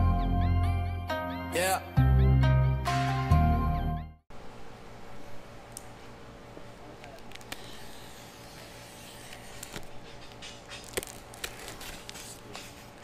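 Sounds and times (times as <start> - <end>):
low room hum: 4.3 - 13.0.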